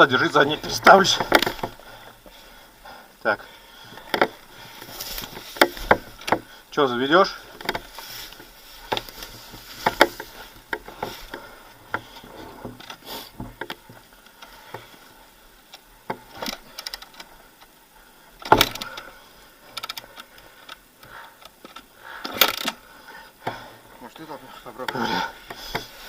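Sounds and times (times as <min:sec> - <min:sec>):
motorcycle clunks and knocks: 0:00.8 - 0:01.8, 0:18.4 - 0:19.0.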